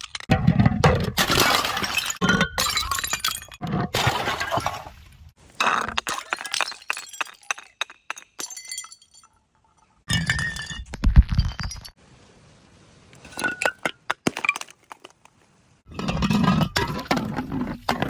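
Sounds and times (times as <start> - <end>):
glass bottles shattering: 1.1 - 4.8, 5.6 - 9.4, 10.1 - 12.0.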